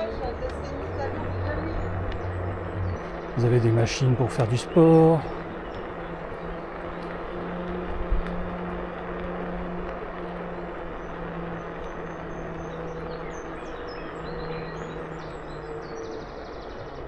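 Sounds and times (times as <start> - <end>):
birds chirping: 0.0 - 17.0
electric scooter motor whine: 0.0 - 17.0
tyre and wind noise: 5.3 - 15.5.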